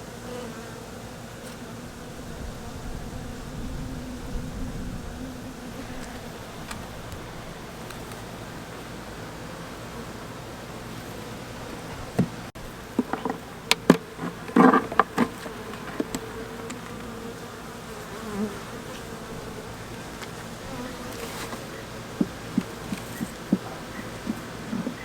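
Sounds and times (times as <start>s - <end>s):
bees buzzing: 0.0s - 25.0s
sharp clicks and knocks: 12.2s - 17.1s.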